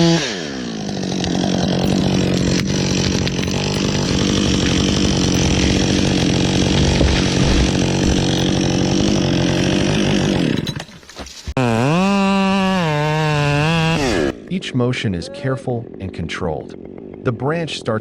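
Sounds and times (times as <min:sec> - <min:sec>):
chainsaw cutting wood: 0:00.0 - 0:14.7, 0:15.8 - 0:18.0.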